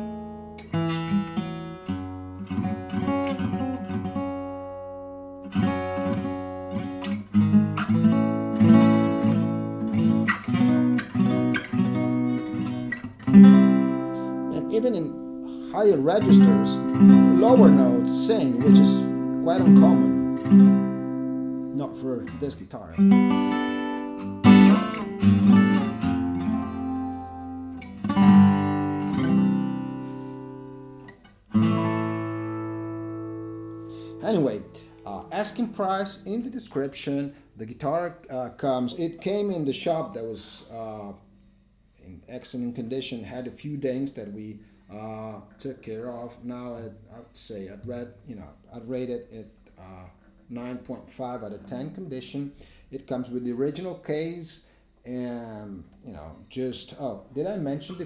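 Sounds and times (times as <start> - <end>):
acoustic guitar playing: 0.0 - 37.5, 50.2 - 53.9, 57.3 - 58.0.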